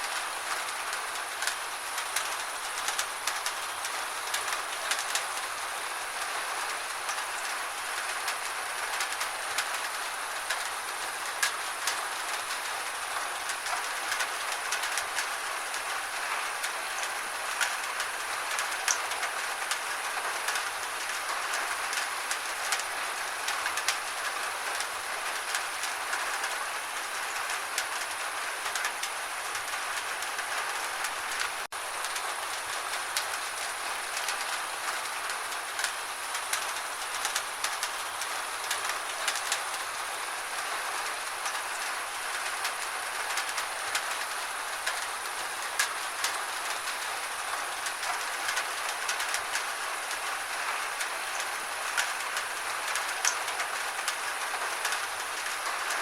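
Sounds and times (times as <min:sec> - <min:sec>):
gentle rain: 0:00.0 - 0:56.0.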